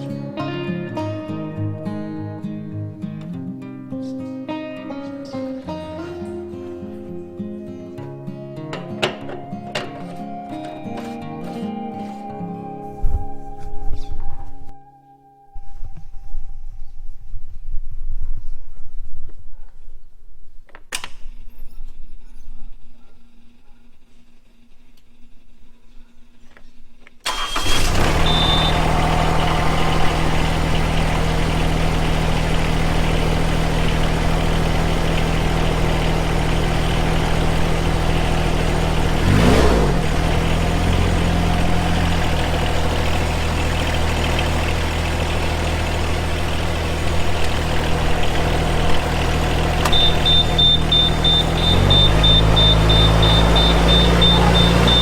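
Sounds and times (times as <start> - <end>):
engine starting and idling: 27.2 - 55.0
short high beep: 28.2 - 30.2, 49.9 - 55.0
steady high beeping: 28.3 - 32.6, 49.9 - 55.0.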